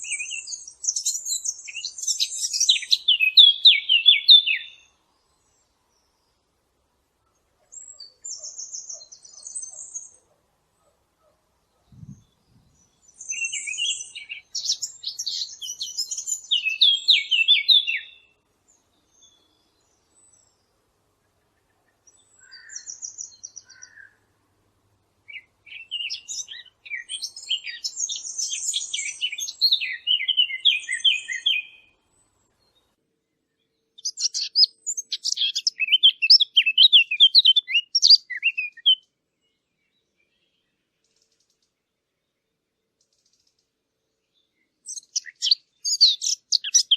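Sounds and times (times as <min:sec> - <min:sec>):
small songbirds chirping and trilling: 0:00.0 - 0:46.9.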